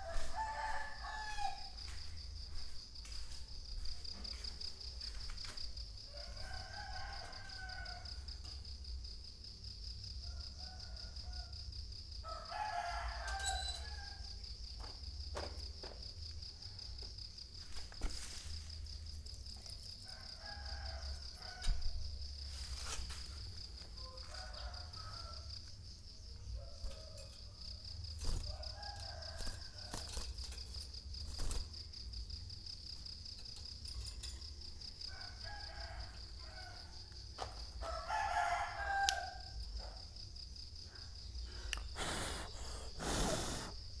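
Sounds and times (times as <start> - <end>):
rooster crowing: 0.0 - 3.4, 6.0 - 8.6, 10.2 - 14.4, 20.0 - 22.2, 23.7 - 25.8, 26.5 - 30.4, 35.0 - 40.0
pulsing insect trill: 0.0 - 44.0.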